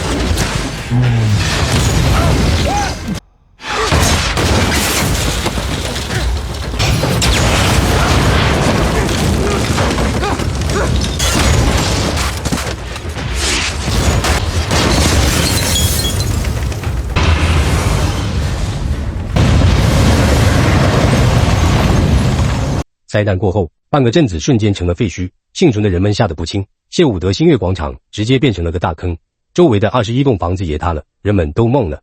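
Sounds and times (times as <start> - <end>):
crashing and shattering: 0.0 - 22.8
heavy rumbling boom: 0.0 - 22.8
dramatic music: 16.1 - 20.9.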